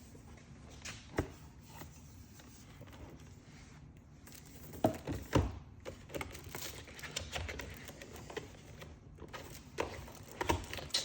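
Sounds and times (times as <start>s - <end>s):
plastic and cardboard clicks and scrapes: 4.3s - 11.0s.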